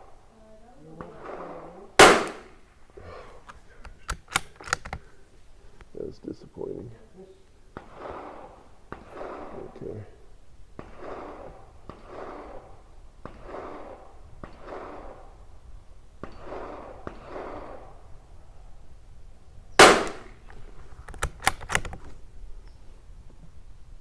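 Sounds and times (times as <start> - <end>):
rifle shot: 1.0 - 2.8, 7.8 - 9.8, 10.8 - 15.6, 16.2 - 18.1, 19.8 - 22.0
rifle bolt clicks: 2.0 - 2.5, 3.4 - 5.1, 19.8 - 22.2.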